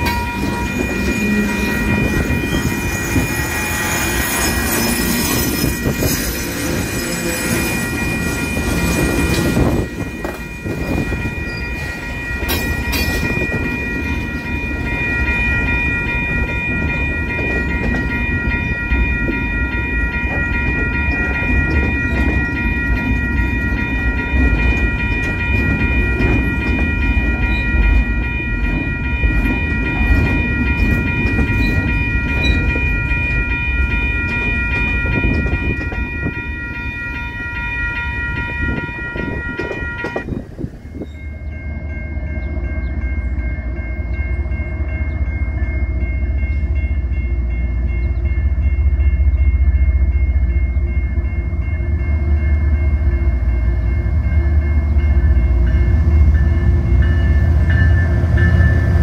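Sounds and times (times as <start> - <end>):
wheels clicking on rail: 0.0 - 41.6
train rumble: 0.0 - 59.0.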